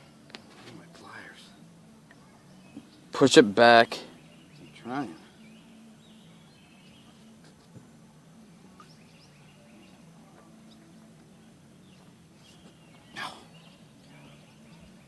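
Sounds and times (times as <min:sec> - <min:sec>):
faint bird chirps: 0:08.6 - 0:15.0.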